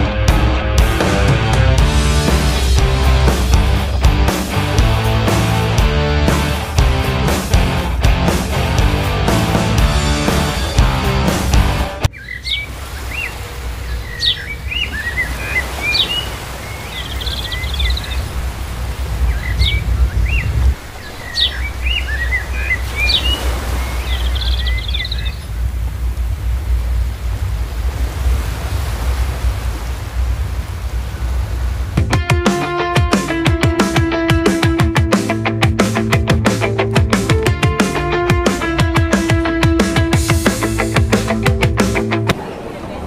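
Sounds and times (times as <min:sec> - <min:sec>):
small songbird chirping: 0:12.1 - 0:18.4, 0:19.2 - 0:25.6
low outdoor rumble: 0:24.2 - 0:32.1.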